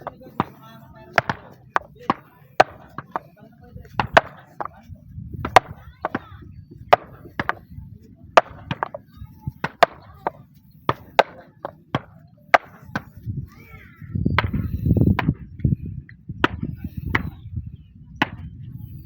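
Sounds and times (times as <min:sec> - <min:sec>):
tool chopping wood: 0:01.2 - 0:03.3, 0:04.0 - 0:04.8, 0:05.4 - 0:07.7, 0:08.4 - 0:13.2, 0:14.4 - 0:15.4.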